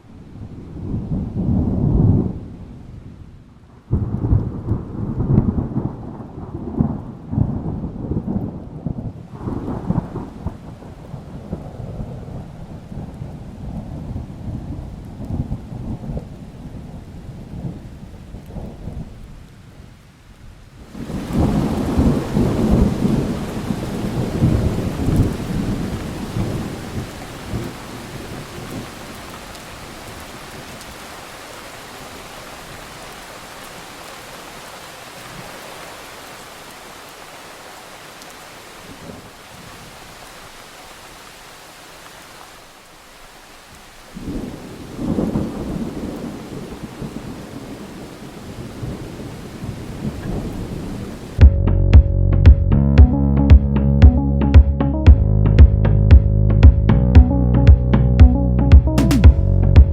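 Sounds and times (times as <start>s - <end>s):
thunder rumbling: 3.9s - 17.8s, 20.9s - 31.1s, 44.2s - 59.9s
rain hiss: 8.4s - 51.4s.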